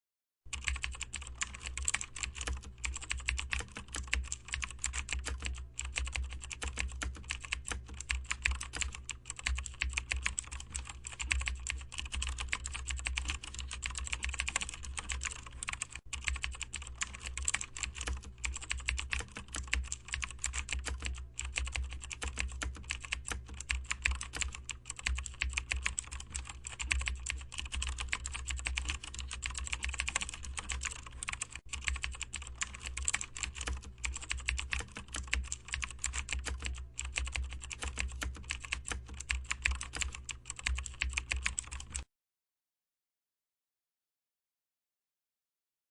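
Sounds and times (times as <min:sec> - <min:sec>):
keyboard typing: 0:00.5 - 0:42.1.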